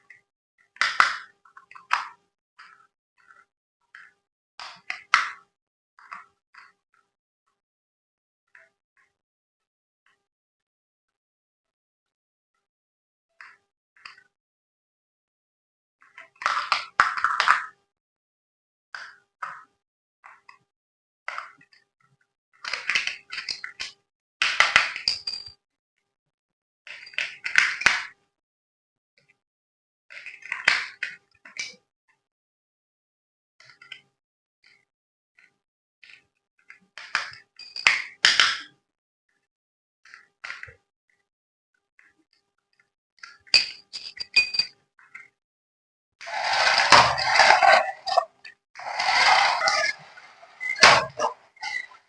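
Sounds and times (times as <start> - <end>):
hard objects clicking and clinking: 43.5 - 44.7
hard objects clacking: 46.2 - 52.0.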